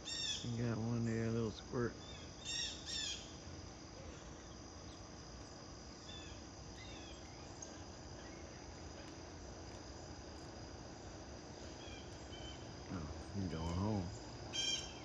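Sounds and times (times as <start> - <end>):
insect trilling: 0.0 - 3.4, 10.0 - 15.0
faint bird chirps: 11.7 - 15.0.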